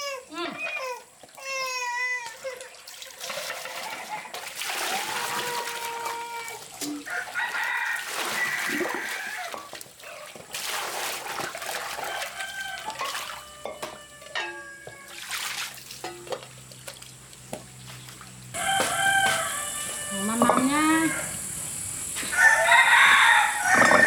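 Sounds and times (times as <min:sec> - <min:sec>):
rooster crowing: 0:07.0 - 0:09.7, 0:12.0 - 0:15.2, 0:18.6 - 0:21.6, 0:22.2 - 0:24.0
chickens calling: 0:18.6 - 0:24.0.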